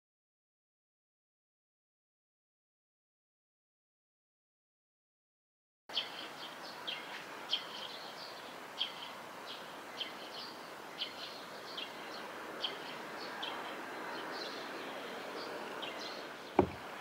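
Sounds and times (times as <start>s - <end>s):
bird chirping: 5.9s - 17.0s
river water rushing: 16.4s - 17.0s.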